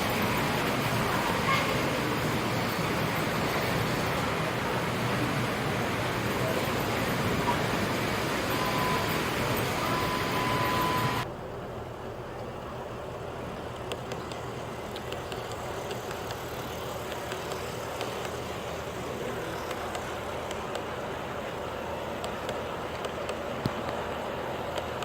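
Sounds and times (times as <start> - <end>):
hiss with whistle-like tone: 0.0 - 11.2
wheels clicking on track: 0.0 - 11.3, 13.4 - 25.0
model train rumbling: 0.0 - 25.0.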